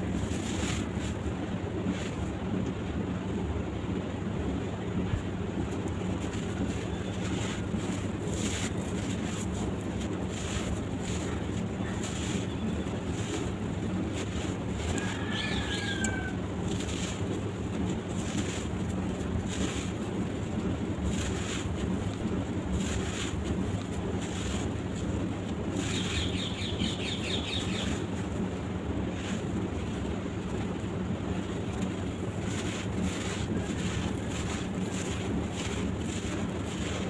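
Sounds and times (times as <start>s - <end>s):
sand-cement clumps crumbling: 0.0s - 2.6s, 4.7s - 37.0s
low rumble of wind on microphone: 0.0s - 37.0s
bird chirping: 25.9s - 27.9s.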